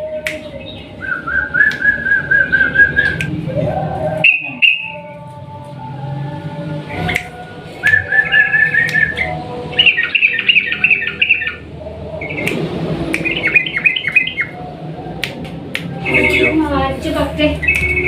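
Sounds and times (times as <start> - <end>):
bird singing chattering song: 4.2 - 5.1, 7.9 - 11.6, 12.2 - 12.6, 13.2 - 14.6, 16.0 - 16.7, 17.5 - 18.0.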